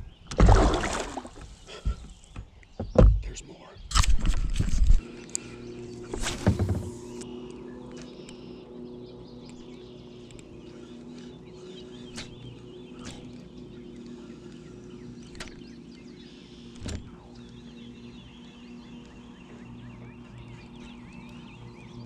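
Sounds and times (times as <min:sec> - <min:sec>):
birds chirping: 0:00.0 - 0:22.0
steady low hum: 0:00.0 - 0:22.0.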